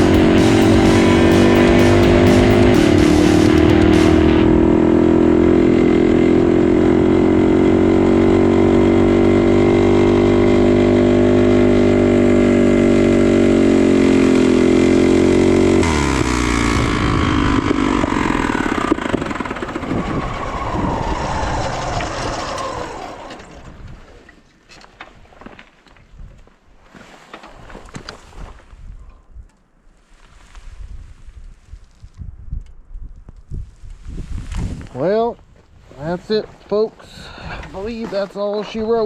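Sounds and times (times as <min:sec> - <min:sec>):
mini bike engine running: 0:00.0 - 0:23.7.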